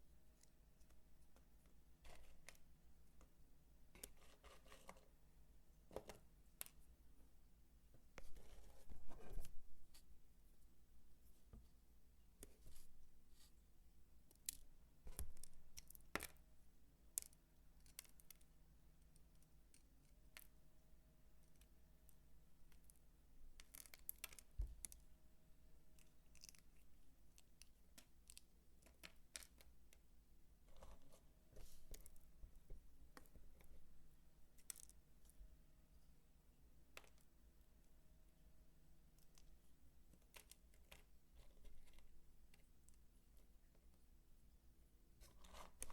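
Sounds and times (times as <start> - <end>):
dry soap clicking and scraping: 0.4 - 5.2, 23.6 - 25.1, 25.9 - 33.8, 34.5 - 35.4, 36.9 - 37.4, 39.1 - 43.9, 45.2 - 45.9.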